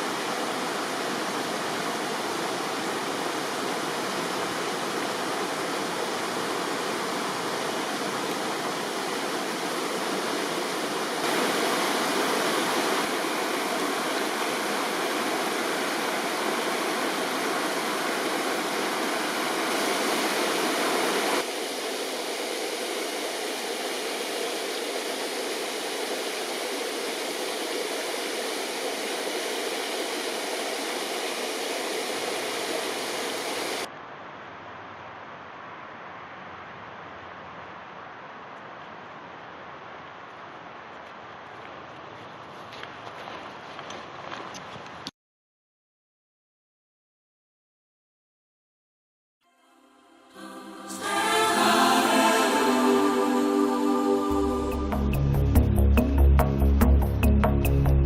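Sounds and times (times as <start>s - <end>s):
river water rushing: 0.0s - 33.9s, 50.4s - 54.9s.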